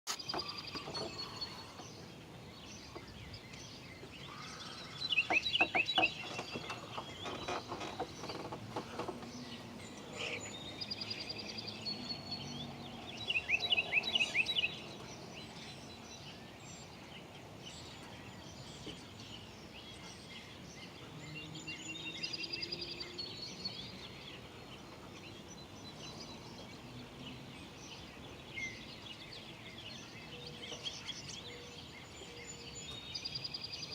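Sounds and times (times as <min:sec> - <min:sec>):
songbirds chirping and singing: 0:00.1 - 0:33.9.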